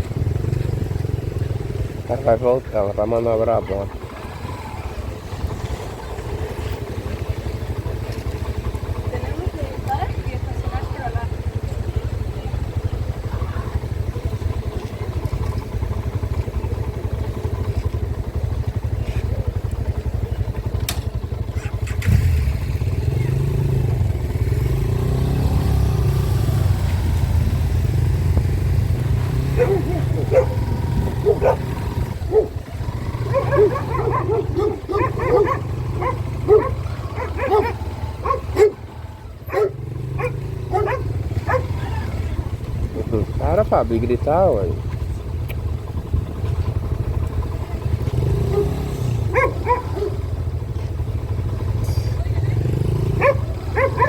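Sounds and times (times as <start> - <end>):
motorcycle engine rumbling: 0.0 - 54.0
dog barking: 29.4 - 42.2, 48.4 - 50.3, 53.1 - 54.0.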